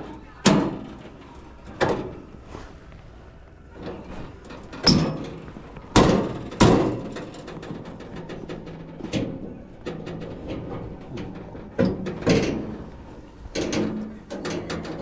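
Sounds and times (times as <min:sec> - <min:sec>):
hard parts knocking and rattling: 0:03.8 - 0:15.0.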